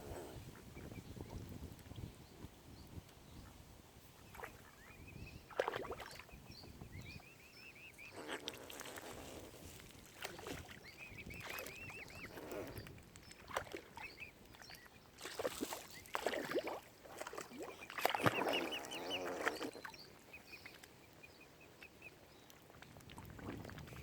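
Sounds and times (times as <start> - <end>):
birds chirping: 4.2 - 8.7, 10.2 - 16.3, 17.5 - 22.5.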